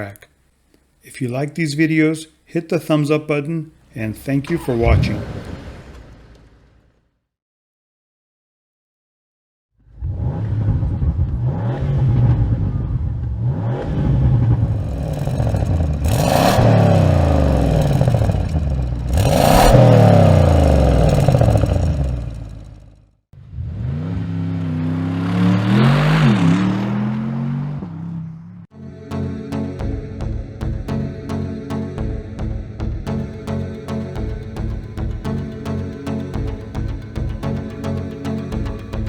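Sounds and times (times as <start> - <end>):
exhaust cracks: 3.8 - 7.1, 9.9 - 24.3, 33.1 - 39.0
car engine accelerating hard: 9.9 - 28.7.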